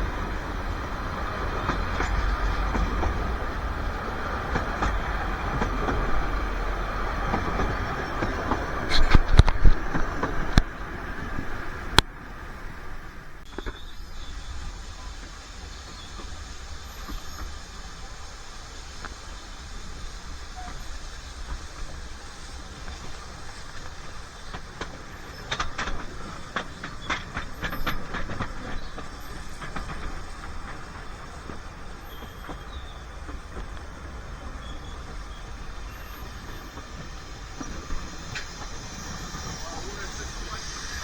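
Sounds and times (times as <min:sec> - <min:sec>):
train rumble and hiss: 0:00.0 - 0:41.0
wheel clicks over rails: 0:22.8 - 0:34.2.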